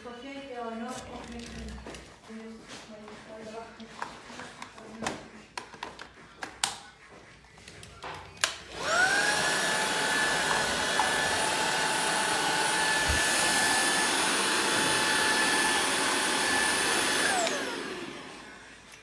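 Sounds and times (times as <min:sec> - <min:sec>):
vacuum motor whine: 0:08.7 - 0:19.0.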